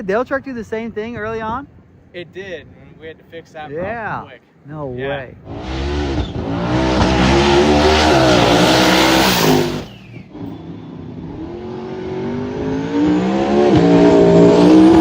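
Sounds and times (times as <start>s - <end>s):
truck engine at full throttle: 5.5s - 15.0s.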